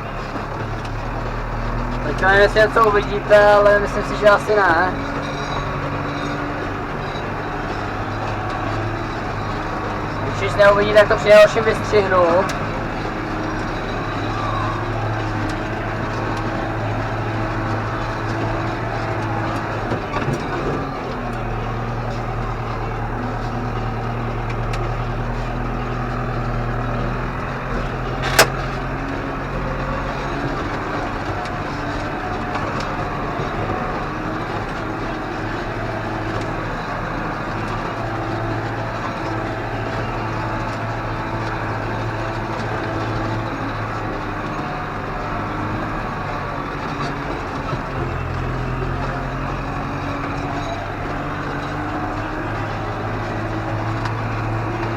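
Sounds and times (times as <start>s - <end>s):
tractor engine running: 0.0s - 54.9s
sharp click: 28.2s - 28.7s.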